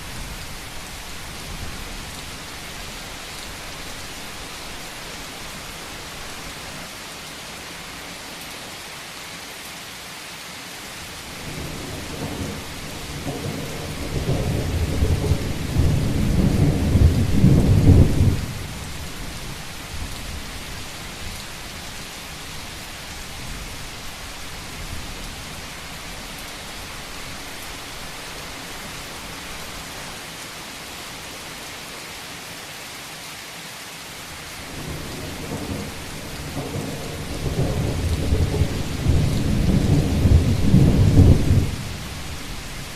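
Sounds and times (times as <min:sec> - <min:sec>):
rain falling on a roof: 0:00.0 - 0:42.9
rolling thunder: 0:11.4 - 0:18.8, 0:34.7 - 0:42.4.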